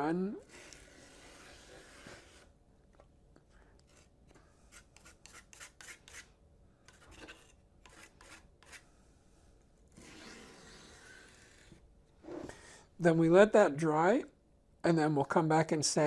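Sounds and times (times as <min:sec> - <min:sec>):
spatula scraping filler: 0:00.4 - 0:02.5, 0:06.9 - 0:08.9, 0:09.9 - 0:12.7.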